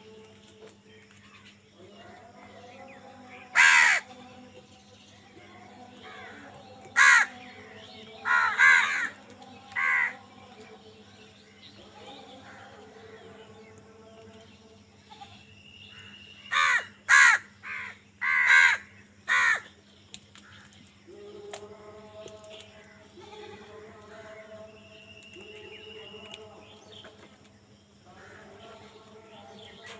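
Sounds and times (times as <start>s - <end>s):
crows cawing: 3.5s - 4.1s, 7.0s - 7.4s, 8.2s - 10.2s, 15.9s - 19.7s, 28.1s - 28.8s.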